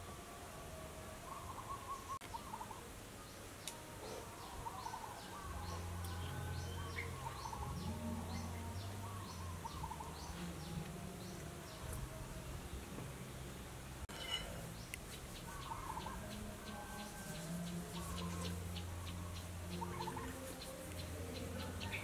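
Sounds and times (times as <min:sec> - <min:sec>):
birds chirping: 0:01.2 - 0:22.0
low trilling bird calls: 0:04.4 - 0:11.4.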